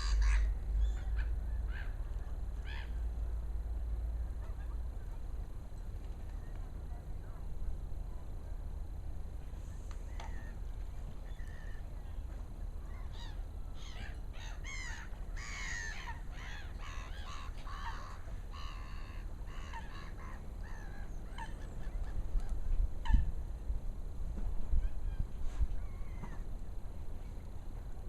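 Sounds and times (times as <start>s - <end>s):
birds harsh repeated calls: 0.0s - 3.1s, 10.1s - 23.4s
wind rumble on microphone: 18.3s - 28.0s.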